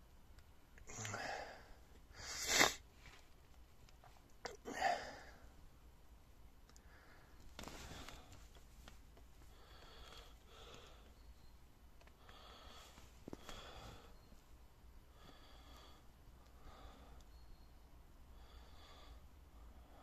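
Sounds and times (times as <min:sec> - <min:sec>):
faint breaths near microphone: 0:06.7 - 0:20.0.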